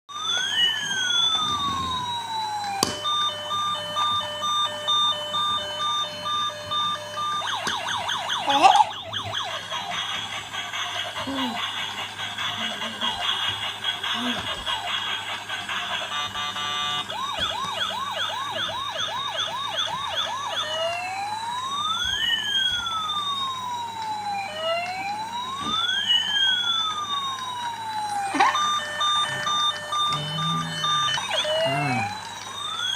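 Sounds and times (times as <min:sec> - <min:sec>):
toy siren yelping and wailing: 0:00.1 - 0:32.9
steady beeping tone: 0:28.0 - 0:32.8.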